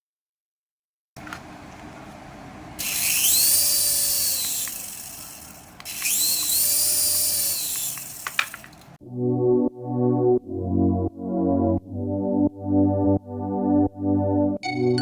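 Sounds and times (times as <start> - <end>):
small electric motor whining: 2.8 - 9.0.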